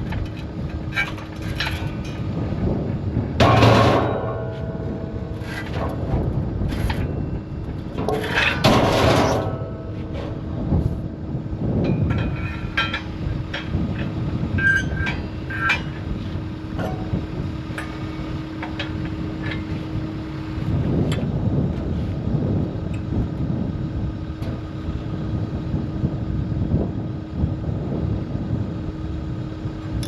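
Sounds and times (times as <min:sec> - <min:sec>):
metal clinking and clanking: 0:00.0 - 0:02.3, 0:03.4 - 0:07.2, 0:07.8 - 0:10.7, 0:11.8 - 0:16.2, 0:16.8 - 0:19.8
low rumble: 0:00.0 - 0:30.0
steady hum: 0:00.0 - 0:30.0.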